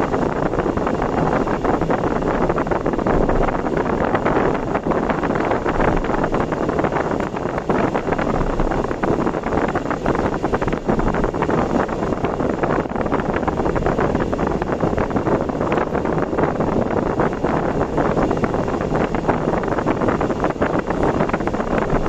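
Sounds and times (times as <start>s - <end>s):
vehicle wind and road noise: 0.0s - 22.0s.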